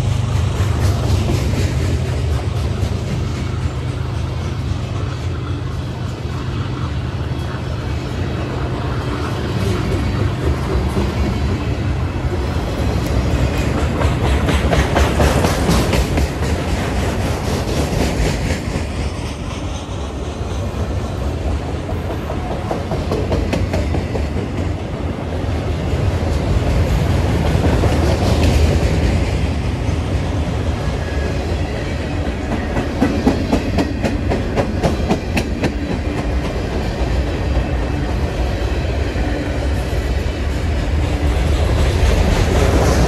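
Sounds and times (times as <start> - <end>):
freight train rumbling past: 0.0 - 43.0
wheels clicking over rail joints: 12.4 - 19.0.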